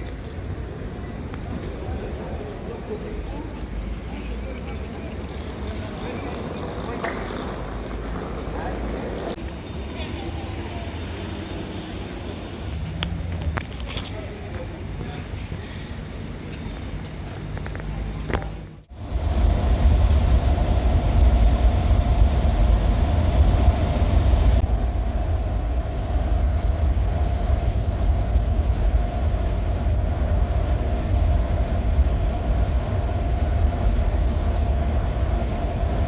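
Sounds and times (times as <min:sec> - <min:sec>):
vehicle interior rumble and hum: 0:12.7 - 0:14.2, 0:18.3 - 0:36.0.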